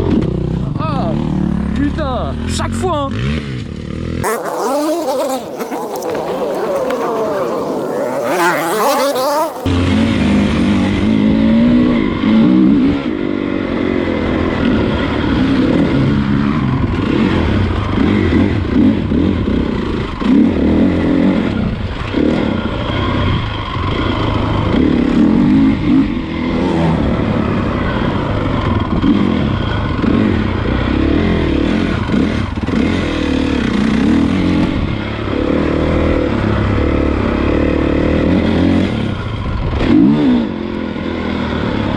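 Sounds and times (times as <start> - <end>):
motorbike engine revving: 3.1 - 10.4.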